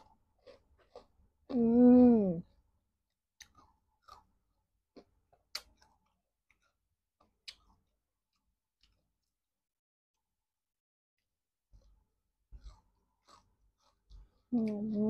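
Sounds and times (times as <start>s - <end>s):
soft wet chewing clicks and smacks: 3.1s - 9.4s, 11.7s - 15.0s.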